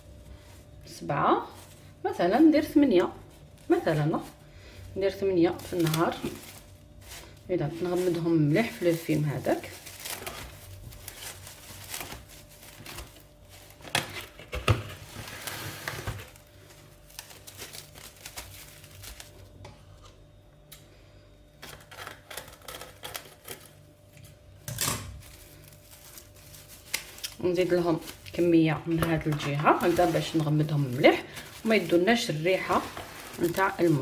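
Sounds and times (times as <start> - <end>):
cling film crinkling: 5.1 - 19.5, 25.2 - 34.0.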